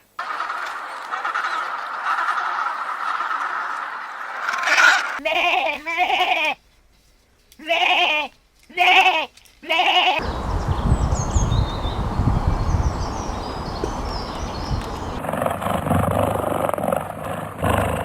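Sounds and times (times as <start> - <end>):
goat or sheep bleating: 5.2 - 6.6, 7.6 - 10.5
faint high bird chirps: 10.2 - 15.2
steady low rumble: 10.2 - 15.2.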